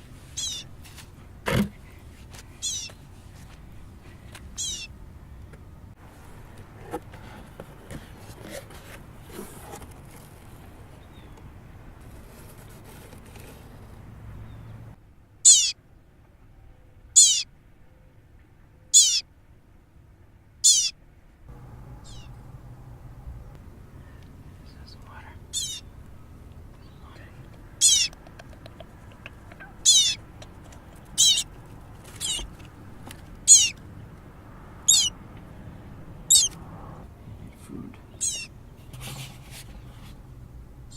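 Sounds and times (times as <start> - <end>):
soft rustling and scraping: 0.0 - 4.5, 6.0 - 11.4, 12.0 - 14.1, 29.4 - 33.4, 38.7 - 40.4
baby bird cheeping: 0.4 - 0.7, 2.6 - 3.0, 4.6 - 4.9, 15.4 - 15.8, 17.2 - 17.4, 18.9 - 19.2, 20.6 - 21.0, 22.0 - 22.4, 25.5 - 25.9, 26.8 - 30.3, 31.0 - 31.5, 32.1 - 32.6, 33.4 - 33.8, 34.8 - 35.2, 36.3 - 36.6, 38.1 - 38.5
faint high peeps: 2.6 - 2.9, 15.5 - 15.8, 17.2 - 17.4, 19.0 - 19.2, 29.8 - 30.2, 33.5 - 33.8, 34.9 - 35.1.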